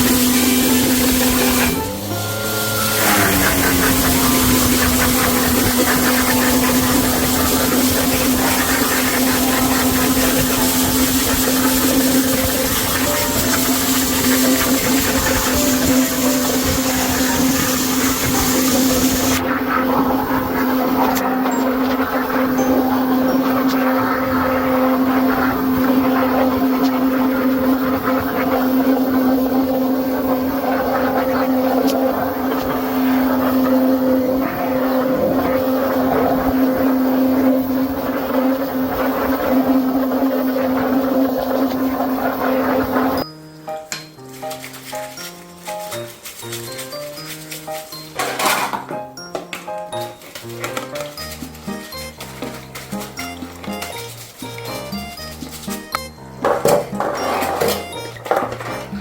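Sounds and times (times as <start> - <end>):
loud hiss: 0.0 - 19.4
motor humming: 0.0 - 43.2.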